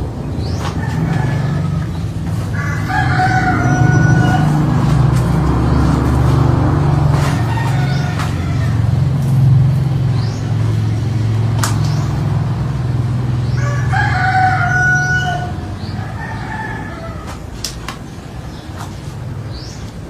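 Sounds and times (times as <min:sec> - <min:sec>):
low engine hum: 0:00.0 - 0:20.0
rooster crowing: 0:00.6 - 0:09.5, 0:13.5 - 0:17.5.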